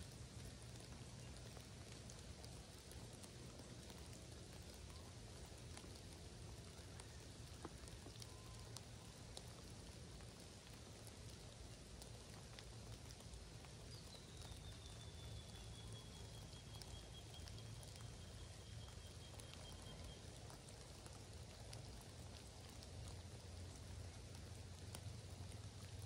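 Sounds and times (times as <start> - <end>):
light drips ticking: 0.0 - 26.0.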